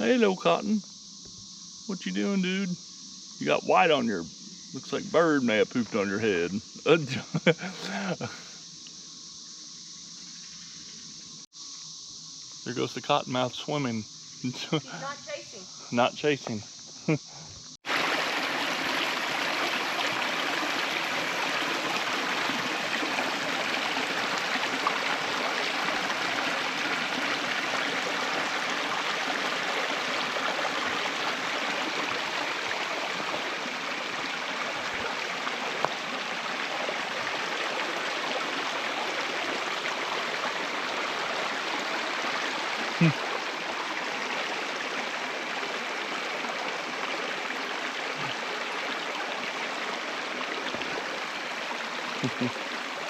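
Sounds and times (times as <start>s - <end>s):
rush of running water: 17.8s - 53.0s.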